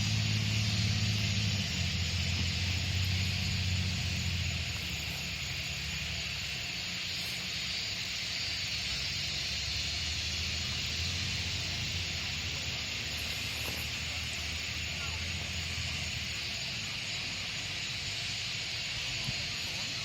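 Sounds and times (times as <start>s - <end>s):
engine humming low: 0.0s - 20.0s
high hiss: 0.0s - 20.0s.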